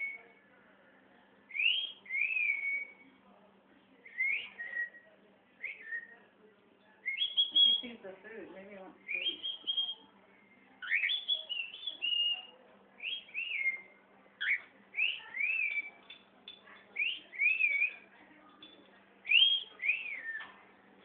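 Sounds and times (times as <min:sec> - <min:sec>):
cockatiel whistling: 0:01.5 - 0:03.0, 0:04.2 - 0:05.0, 0:07.1 - 0:07.9, 0:10.8 - 0:13.8, 0:14.4 - 0:15.9, 0:17.0 - 0:18.0, 0:19.3 - 0:20.5.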